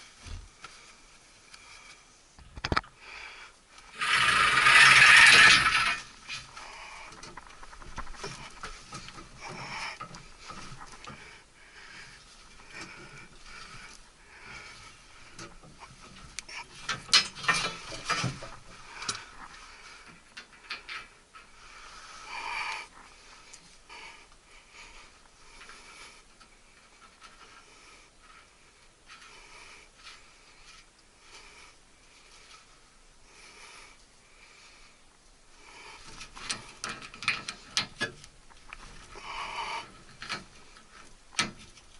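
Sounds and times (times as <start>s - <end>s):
tools and metal parts rattling: 3.9s - 11.2s, 15.2s - 21.6s, 36.2s - 39.1s.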